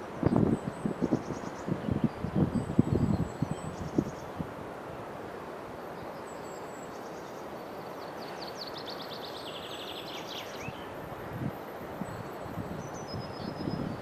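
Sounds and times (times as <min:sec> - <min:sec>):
outdoor background noise: 0:00.0 - 0:14.0
small bird singing trills: 0:06.0 - 0:11.1.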